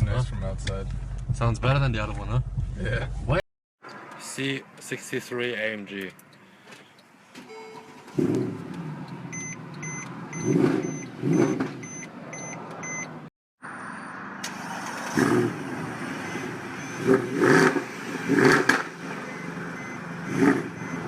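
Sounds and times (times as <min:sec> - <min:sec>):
car engine revving: 0:08.1 - 0:13.0, 0:14.4 - 0:21.0.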